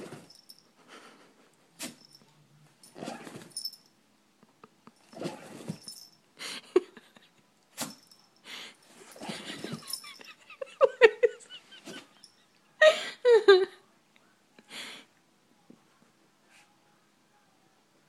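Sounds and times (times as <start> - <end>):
dog sneezing: 1.8 - 2.0.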